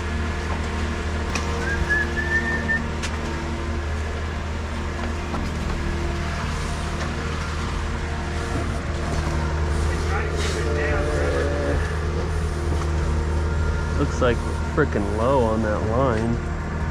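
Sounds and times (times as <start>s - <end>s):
diesel engine droning: 0.0s - 16.9s
high whistle-like squeak: 1.6s - 2.9s.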